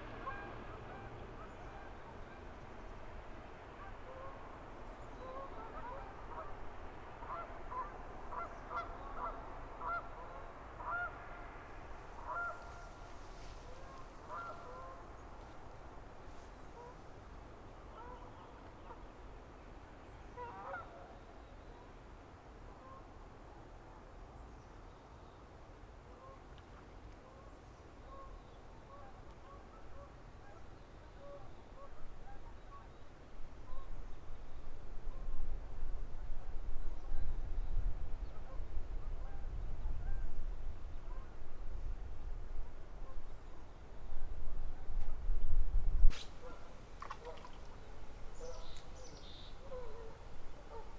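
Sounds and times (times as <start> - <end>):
birds calling: 46.1 - 50.9.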